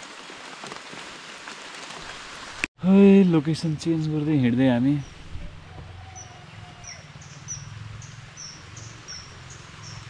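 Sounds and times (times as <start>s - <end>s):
bird chirping: 5.0s - 10.0s.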